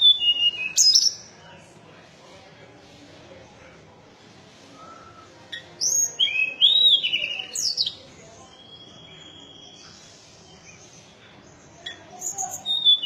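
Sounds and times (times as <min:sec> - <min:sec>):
songbird singing: 0:00.0 - 0:01.4, 0:04.8 - 0:13.0.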